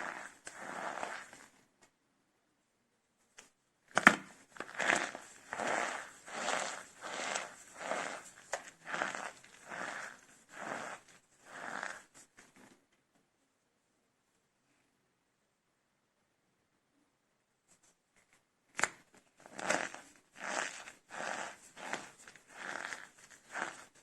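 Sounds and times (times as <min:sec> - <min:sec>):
soap cups crunching: 0:00.0 - 0:01.5, 0:03.9 - 0:12.1, 0:19.4 - 0:24.0.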